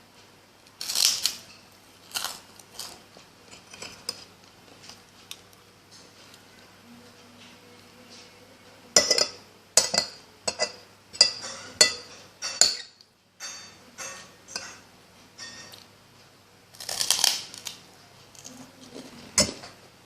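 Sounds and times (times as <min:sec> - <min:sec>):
fork clinking on a plate: 0:09.0 - 0:14.8, 0:15.4 - 0:15.9.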